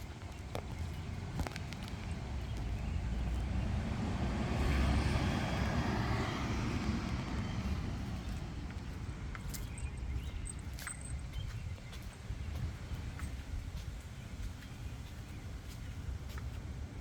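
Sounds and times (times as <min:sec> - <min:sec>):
vehicle driving past: 0:00.9 - 0:09.3.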